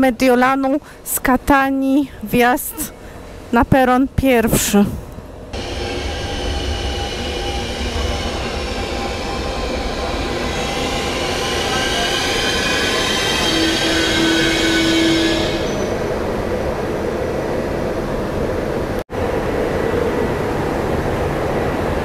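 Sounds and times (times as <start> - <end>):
train rumbling: 4.2 - 22.0
train wheels and brakes squealing: 5.6 - 16.2.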